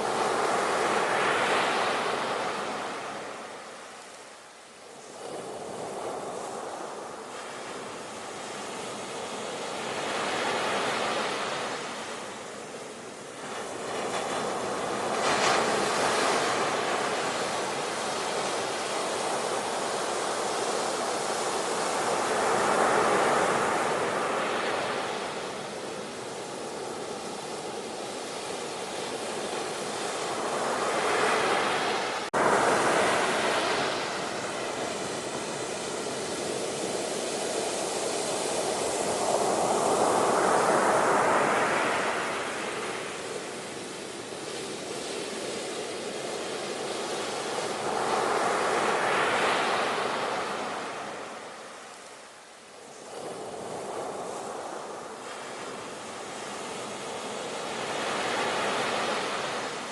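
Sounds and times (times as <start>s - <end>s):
ocean waves washing in and out: 0.0s - 59.9s.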